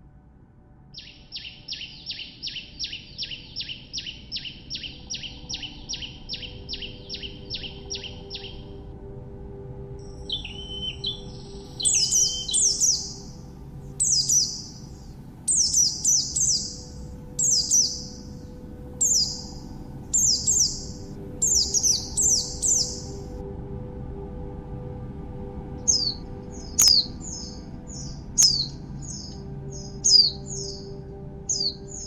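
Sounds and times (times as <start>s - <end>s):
ambient music drone: 0.0s - 32.0s
songbird calling: 1.0s - 8.8s, 10.0s - 23.3s, 25.8s - 32.0s.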